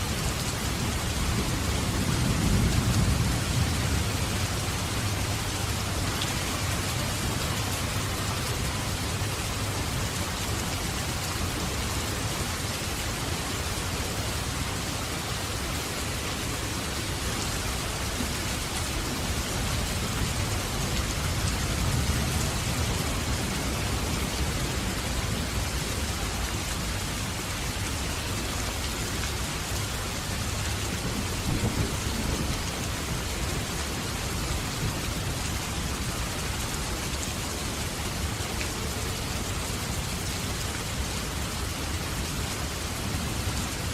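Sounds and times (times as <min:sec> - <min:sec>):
heavy rain falling: 0:00.0 - 0:43.9
low rolling thunder: 0:01.1 - 0:08.2, 0:31.0 - 0:33.6.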